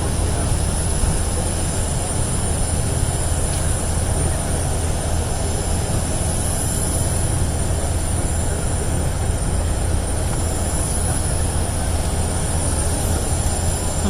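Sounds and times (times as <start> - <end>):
loud engine rumble: 0.0 - 14.0.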